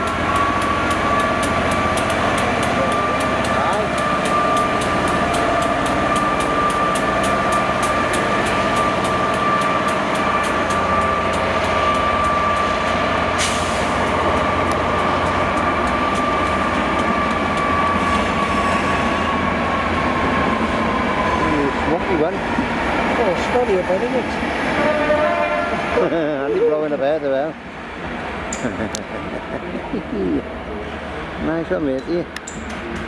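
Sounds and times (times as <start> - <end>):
wheel clicks on rail joints: 0.0 - 12.7
train electric whine: 0.0 - 26.3.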